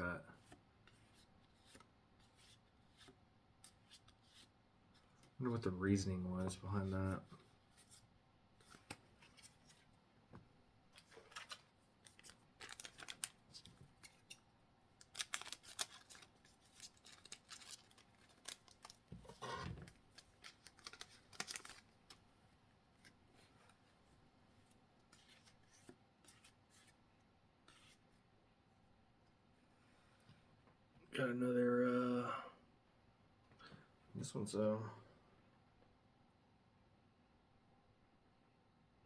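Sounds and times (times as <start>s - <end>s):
cards being handled: 8.6s - 9.9s, 11.0s - 22.2s, 25.1s - 27.0s
foil pack crinkling: 11.0s - 14.3s, 15.0s - 21.9s.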